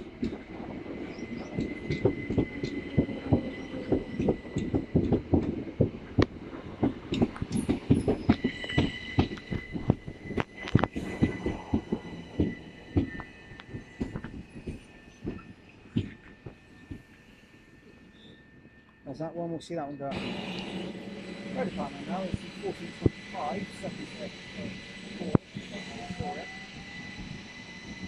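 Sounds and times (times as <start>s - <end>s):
train wheels clattering over rail joints: 0.0s - 17.2s
high brake squeal: 7.5s - 19.2s, 19.9s - 28.0s.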